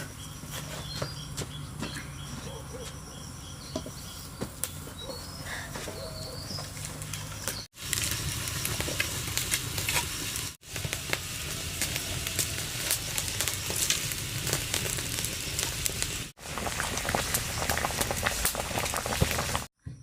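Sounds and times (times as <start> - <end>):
food sizzling in a pan: 7.8 - 19.7.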